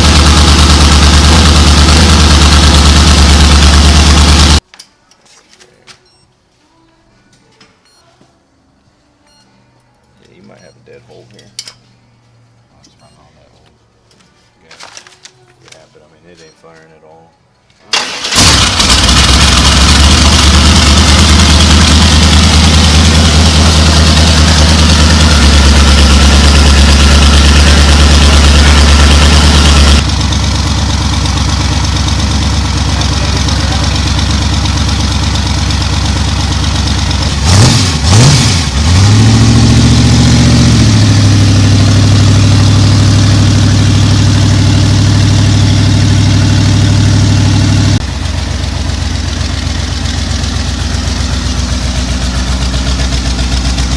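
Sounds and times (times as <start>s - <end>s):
engine idling and revving: 0.0s - 4.6s, 18.0s - 53.9s.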